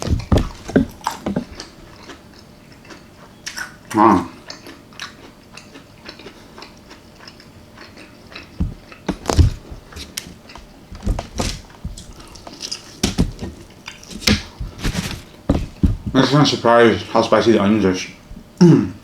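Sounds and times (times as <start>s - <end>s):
chewing and biting food: 0.0s - 16.2s.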